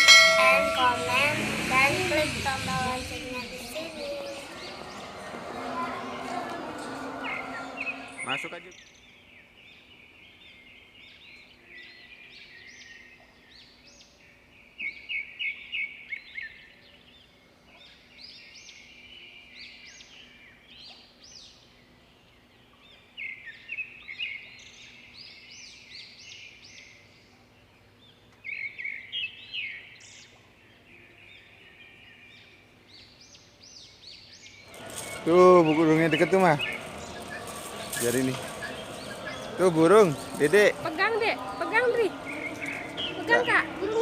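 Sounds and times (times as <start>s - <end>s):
birds calling and chirping: 0.0s - 9.0s, 33.2s - 44.0s.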